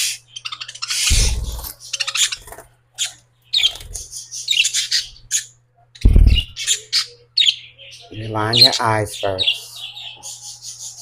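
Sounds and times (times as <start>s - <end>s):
pet bird chirping and squawking: 0.0s - 8.8s.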